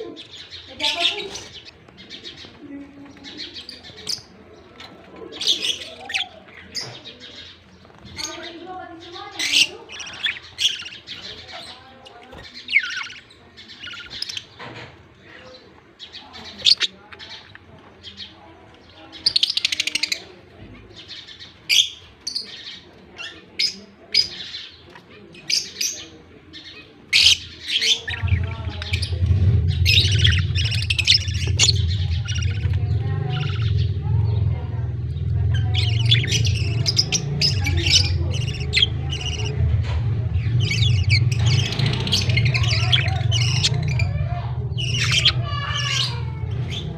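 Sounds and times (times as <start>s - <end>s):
budgerigars chirping: 0.0s - 46.9s
steady low hum: 28.1s - 46.9s.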